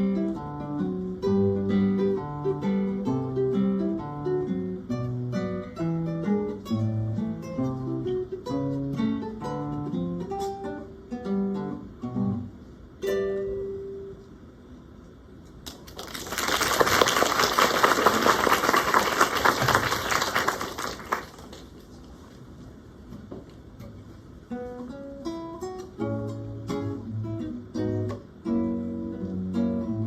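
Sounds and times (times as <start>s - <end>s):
acoustic guitars plucking: 0.0s - 14.4s, 23.8s - 30.0s
audience applauding: 15.7s - 21.8s.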